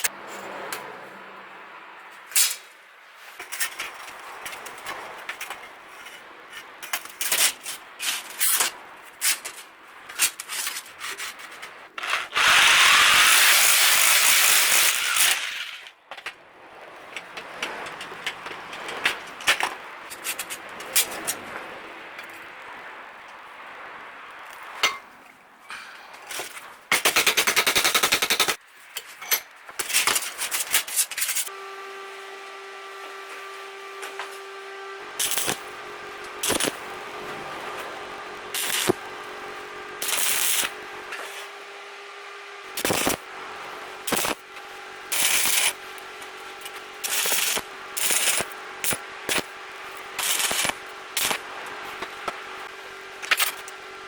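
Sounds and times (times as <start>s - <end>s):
harsh crackling noise: 30.6s - 53.8s
machine hum: 31.5s - 54.0s
steel pieces clanking: 35.2s - 37.1s, 40.0s - 41.5s, 42.8s - 43.2s, 44.0s - 51.4s.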